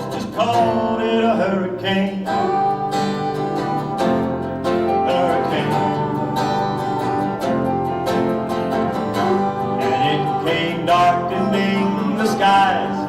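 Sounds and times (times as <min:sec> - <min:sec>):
plucked acoustic guitar music: 0:00.0 - 0:13.0.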